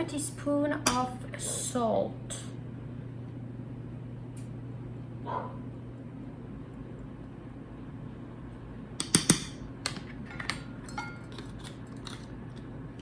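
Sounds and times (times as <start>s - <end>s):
steady low hum: 0.0s - 13.0s
utensils clinking against bowl: 9.0s - 12.6s.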